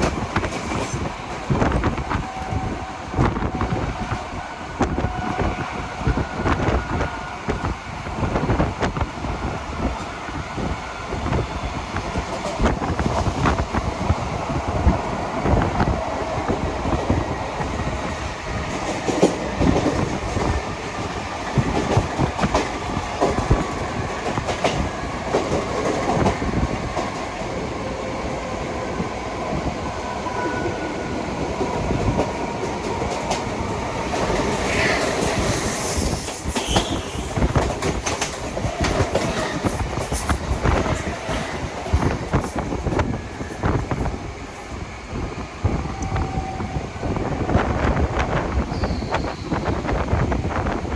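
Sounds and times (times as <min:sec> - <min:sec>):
train wheels clattering over rails: 0:00.0 - 0:03.7, 0:11.2 - 0:27.6, 0:31.0 - 0:44.4
wheel squeals: 0:34.2 - 0:40.3, 0:48.7 - 0:49.8.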